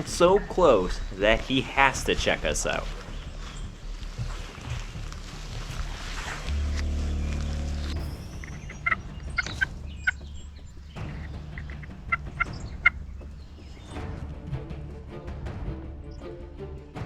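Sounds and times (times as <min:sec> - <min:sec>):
wild turkey call notes: 0:00.0 - 0:14.0
low steady rumble: 0:02.0 - 0:14.0.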